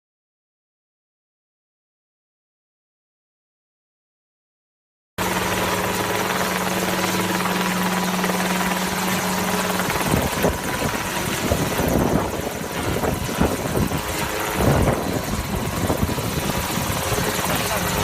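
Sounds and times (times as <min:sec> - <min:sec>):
aircraft rushing noise: 0:05.2 - 0:18.0
low buffeting: 0:05.3 - 0:18.0.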